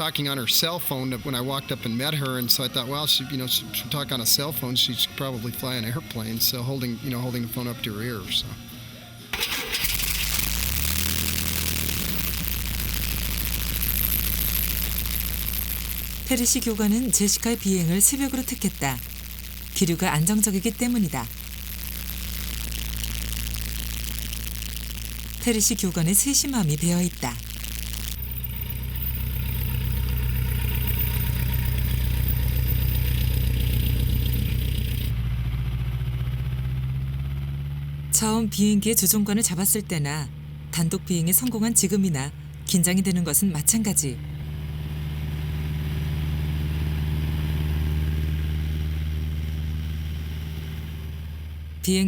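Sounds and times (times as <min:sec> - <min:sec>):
small airplane engine droning: 0:28.5 - 0:37.6.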